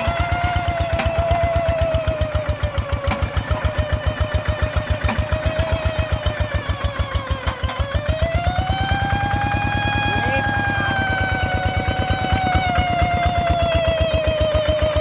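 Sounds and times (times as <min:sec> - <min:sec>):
tractor engine chugging: 0:00.0 - 0:15.0
steady high tone: 0:08.4 - 0:14.2.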